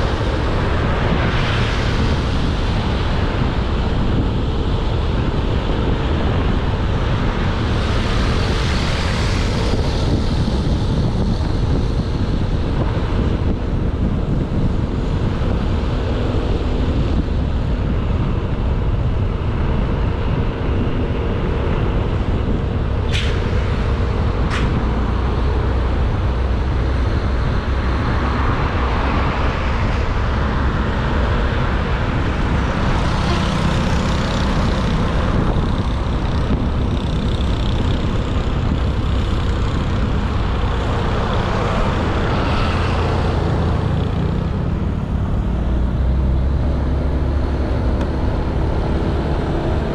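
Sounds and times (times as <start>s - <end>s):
tyre and road noise: 0.0s - 49.9s
wind buffeting microphone: 0.0s - 49.9s.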